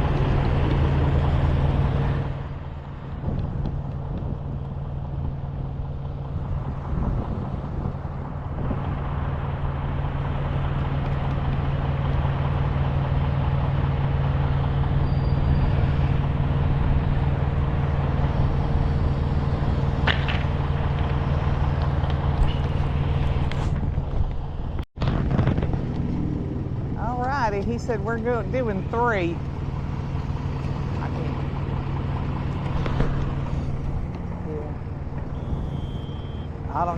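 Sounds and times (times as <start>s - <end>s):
heavy engine idling: 0.0s - 25.4s, 26.3s - 36.9s.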